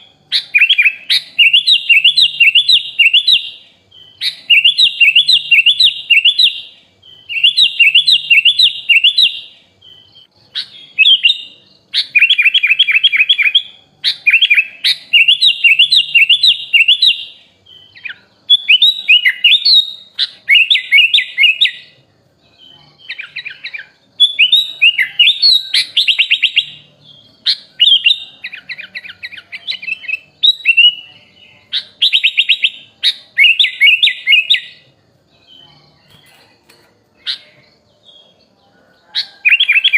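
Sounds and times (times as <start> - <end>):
bird singing trills and chatter: 0.0 - 39.9.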